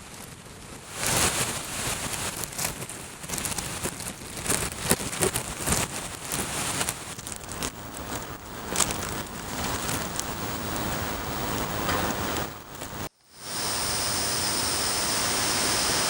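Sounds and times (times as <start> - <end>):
driving rain: 0.0 - 16.0
sharp crackling hits: 0.7 - 13.1
wind rushing: 6.9 - 13.1.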